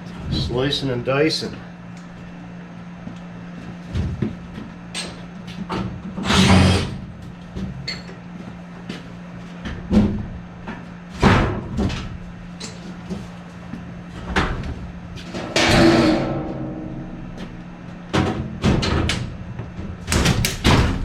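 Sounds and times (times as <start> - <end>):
steady low hum: 0.0 - 21.0
sheet metal clanks and scrapes: 15.2 - 19.4.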